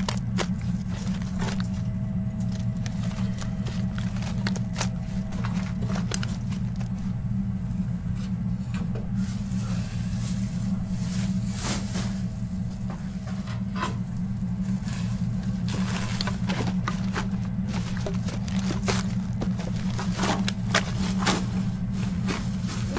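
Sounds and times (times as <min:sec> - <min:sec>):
footsteps crunching through rubble: 0:00.0 - 0:07.2, 0:15.3 - 0:22.9
low rumbling hum: 0:00.0 - 0:22.9.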